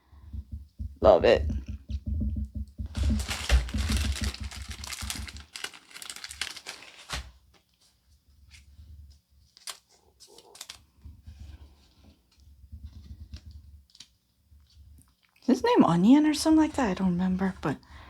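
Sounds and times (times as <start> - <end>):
foil wrapper crinkling and tearing: 2.9 - 7.7, 9.4 - 10.8.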